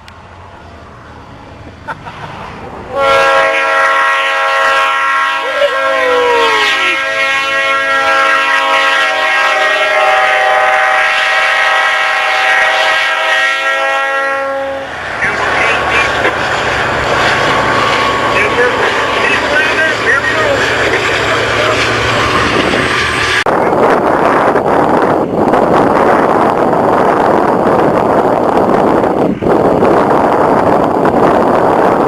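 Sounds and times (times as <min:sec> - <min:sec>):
rushing noise: 0:00.0 - 0:32.0
locomotive air horn blast: 0:02.9 - 0:15.0.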